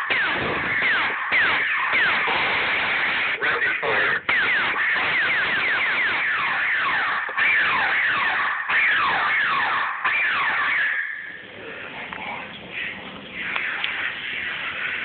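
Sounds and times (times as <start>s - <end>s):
electronic laser blaster shots: 0.0s - 11.4s, 12.7s - 15.0s.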